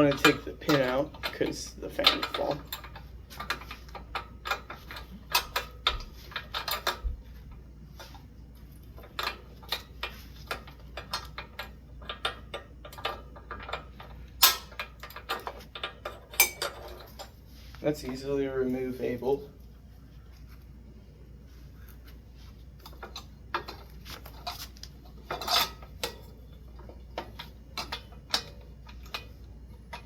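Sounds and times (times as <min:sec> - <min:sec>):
light metal clicks and clinks: 0:00.0 - 0:07.1, 0:09.0 - 0:17.4.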